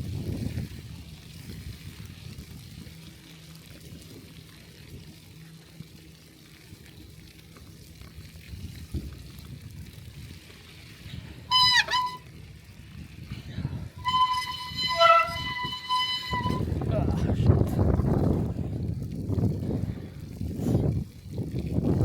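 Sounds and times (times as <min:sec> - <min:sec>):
wind and riding noise: 0:00.0 - 0:22.0
high-pitched squeal: 0:11.5 - 0:12.2, 0:14.0 - 0:16.7.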